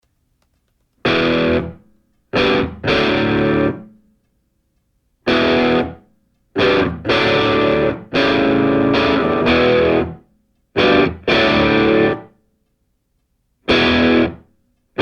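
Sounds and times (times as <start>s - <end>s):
distorted electric guitar chords: 1.0s - 1.8s, 2.4s - 3.9s, 5.3s - 6.0s, 6.6s - 10.2s, 10.8s - 12.3s, 13.7s - 14.4s.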